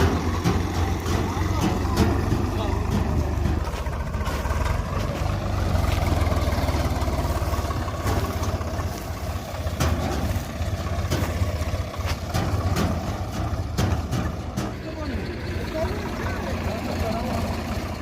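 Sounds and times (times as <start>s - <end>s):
thresher mechanical rumble: 0.0s - 18.0s
tractor diesel engine running: 0.0s - 18.0s
sharp knocks: 9.6s - 15.0s.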